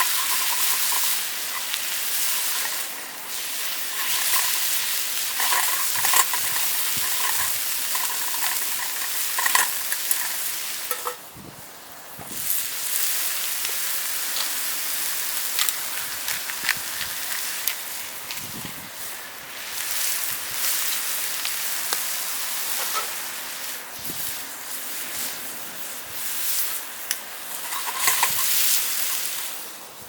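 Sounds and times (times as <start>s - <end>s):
utensil stirring and scraping: 0.0s - 11.2s, 27.5s - 29.6s
food sizzling in a pan: 0.0s - 11.4s, 12.1s - 30.0s.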